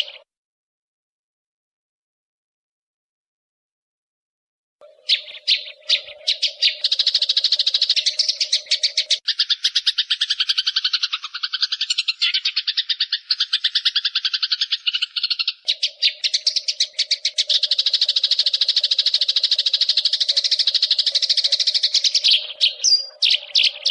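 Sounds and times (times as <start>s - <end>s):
songbird chirping rapidly: 0.0s - 0.3s, 4.8s - 23.9s.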